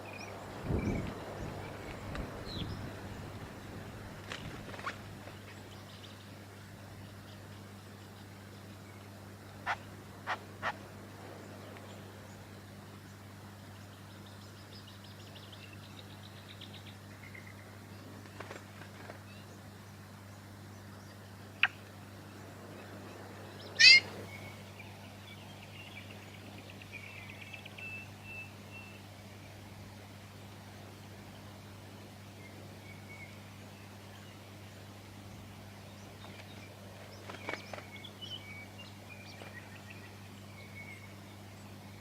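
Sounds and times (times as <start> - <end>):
faint low hum: 0.0 - 42.0
bird chip notes and trills: 23.5 - 29.1
loud sharp bird call: 23.8 - 24.2.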